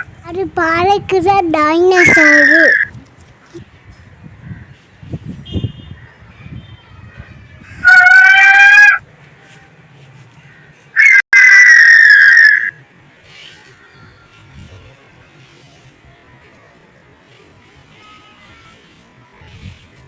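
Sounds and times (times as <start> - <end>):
harsh creature screeching: 2.0 - 2.9, 7.8 - 9.0, 11.0 - 12.8.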